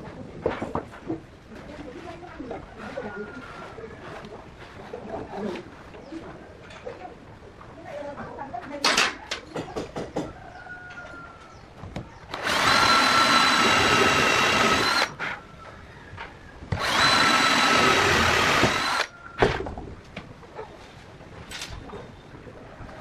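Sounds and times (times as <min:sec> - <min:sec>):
angle grinder running: 0:12.3 - 0:15.2, 0:16.8 - 0:19.1.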